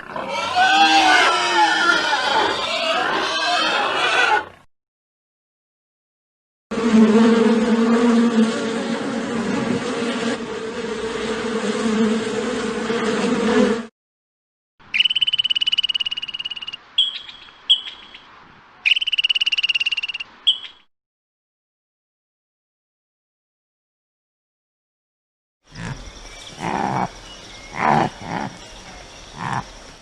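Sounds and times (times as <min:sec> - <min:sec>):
insect buzzing: 0:06.7 - 0:13.9, 0:25.7 - 0:30.0
short chirps: 0:14.9 - 0:18.2, 0:18.9 - 0:20.8
high pulsed insect trill: 0:15.0 - 0:17.9, 0:18.9 - 0:20.2, 0:25.7 - 0:30.0.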